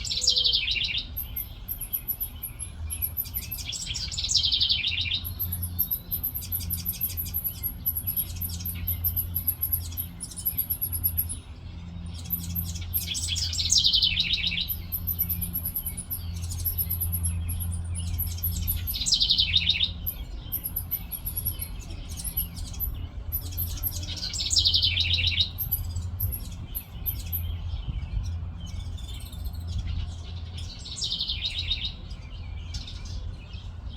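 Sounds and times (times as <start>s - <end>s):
thin high chirping: 0.0s - 11.5s, 12.1s - 27.6s.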